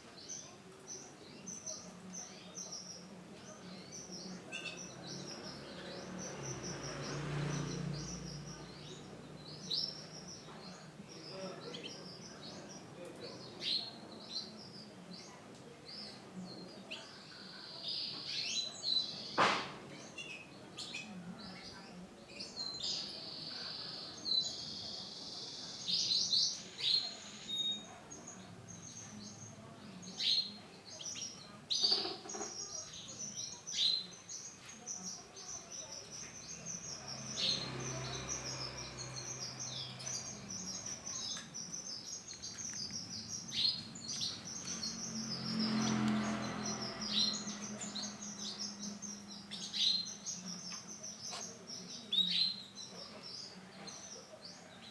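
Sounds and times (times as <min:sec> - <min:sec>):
canary singing: 0:22.6 - 0:54.9.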